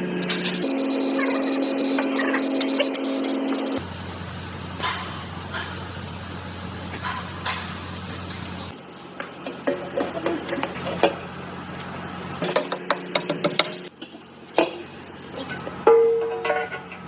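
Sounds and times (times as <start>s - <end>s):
low machine hum: 3.8s - 8.7s
spraying hiss: 3.8s - 8.7s.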